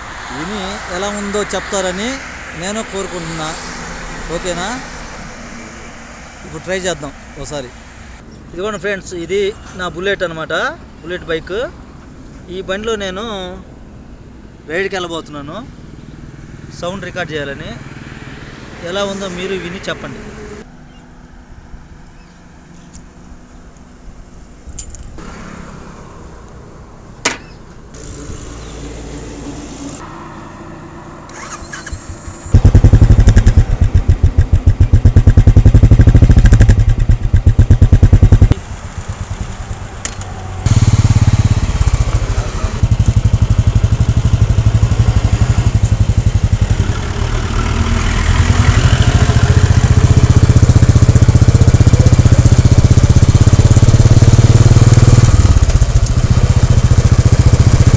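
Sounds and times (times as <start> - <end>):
motorcycle engine running: 31.4 - 57.9.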